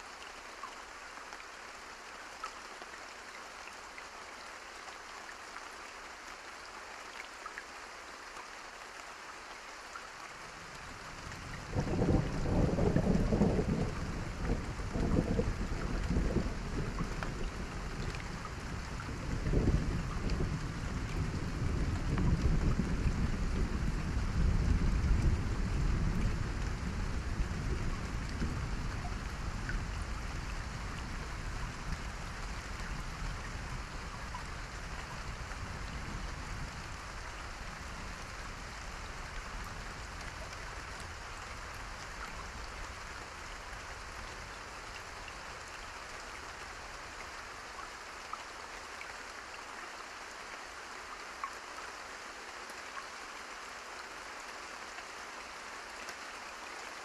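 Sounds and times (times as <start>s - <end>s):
steady rain: 0.0s - 57.0s
low thunder rumble: 11.4s - 34.4s.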